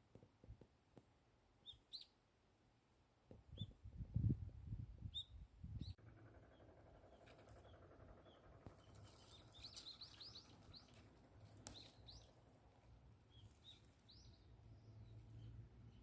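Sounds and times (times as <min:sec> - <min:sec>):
faint bird chirps: 0:01.6 - 0:02.2, 0:05.0 - 0:12.4
low outdoor rumble: 0:05.9 - 0:16.0.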